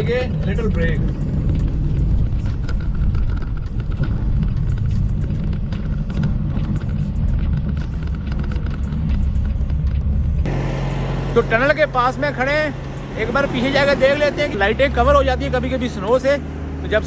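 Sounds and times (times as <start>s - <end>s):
small rattles and clicks: 0.0s - 10.5s
truck engine and road rumble: 0.0s - 17.0s.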